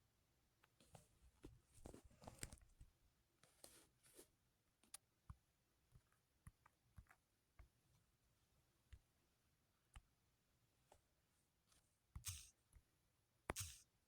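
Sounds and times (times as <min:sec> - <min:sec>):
faint clicks and taps: 0:00.6 - 0:04.2, 0:04.8 - 0:08.1
soft rustling: 0:00.8 - 0:04.4.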